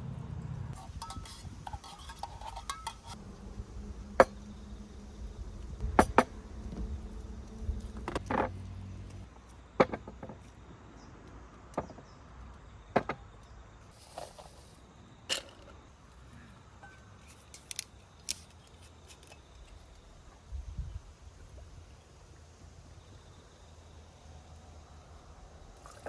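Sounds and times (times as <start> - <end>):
faint low rumble: 3.2 - 9.3.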